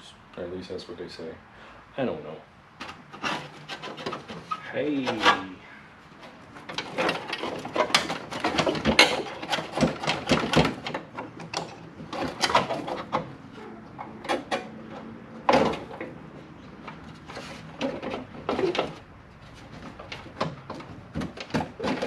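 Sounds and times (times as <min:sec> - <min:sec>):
hand tools clicking and scraping: 0:02.8 - 0:22.0
metal parts clattering: 0:06.6 - 0:10.9.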